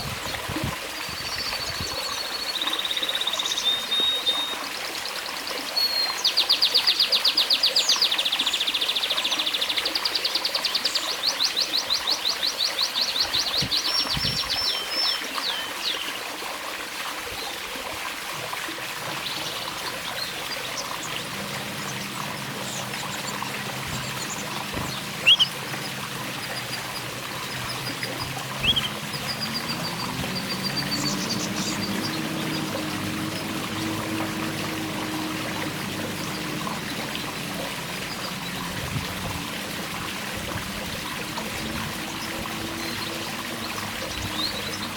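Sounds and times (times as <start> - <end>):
water trickling: 0.0 - 44.9
canary singing trills: 19.3 - 38.6.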